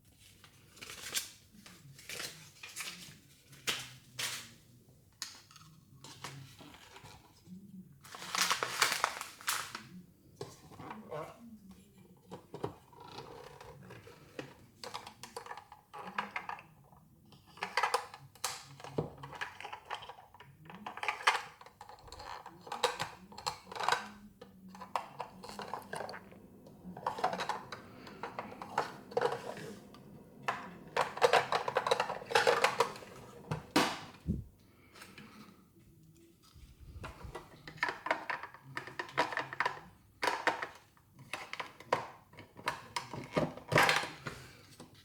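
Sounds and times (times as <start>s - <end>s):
plastic wrapping crinkling: 8.1s - 9.8s.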